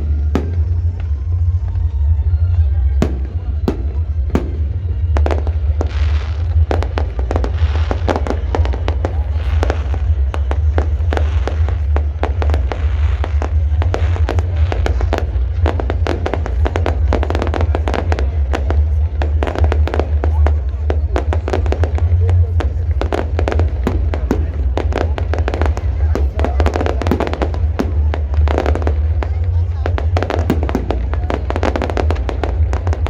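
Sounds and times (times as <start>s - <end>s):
deep steady rumble: 0.0s - 33.0s
fireworks bangs and crackles: 0.0s - 33.0s.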